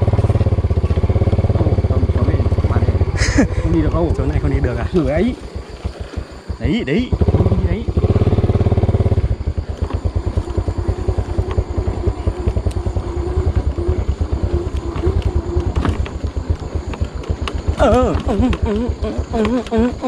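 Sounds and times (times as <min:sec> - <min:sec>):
small motorcycle engine running: 0:00.0 - 0:20.0
wavering whine: 0:00.0 - 0:20.0
person speaking: 0:01.6 - 0:05.4.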